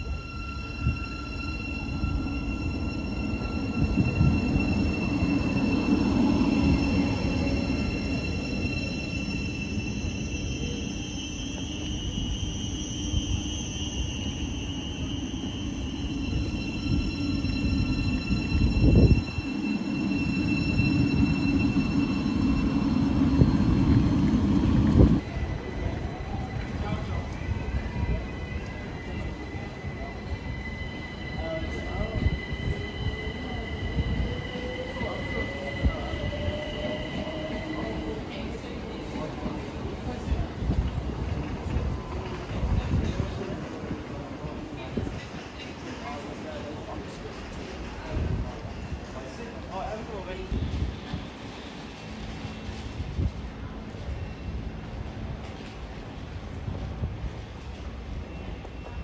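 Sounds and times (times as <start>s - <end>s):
wavering squeal: 0.0s - 40.2s
train rumbling: 0.0s - 59.0s.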